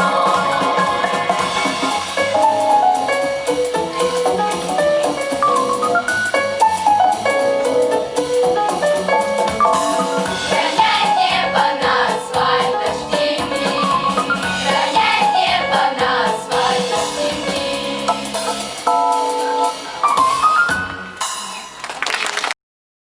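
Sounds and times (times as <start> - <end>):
children's choir singing: 0.0 - 2.1, 10.4 - 18.4
instrumental backing track with drums: 0.0 - 22.0.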